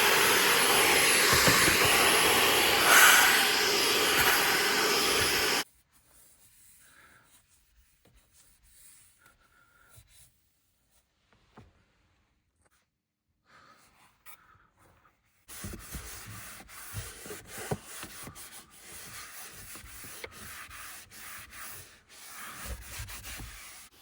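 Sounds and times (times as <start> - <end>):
vacuum cleaner whining: 0.0 - 5.6.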